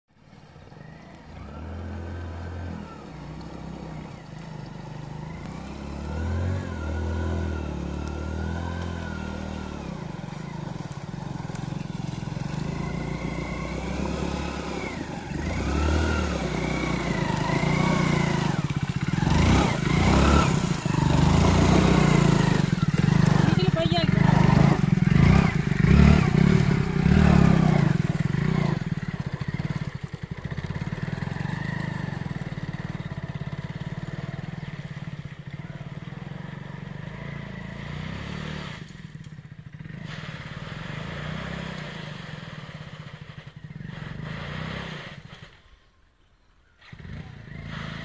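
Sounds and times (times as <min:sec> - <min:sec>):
motorcycle engine revving: 0:00.2 - 0:48.0
water splashing: 0:08.4 - 0:33.1.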